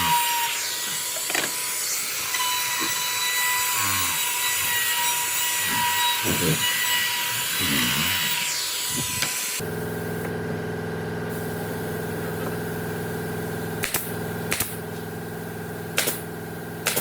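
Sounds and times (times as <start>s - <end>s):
sawing: 0.0s - 9.6s.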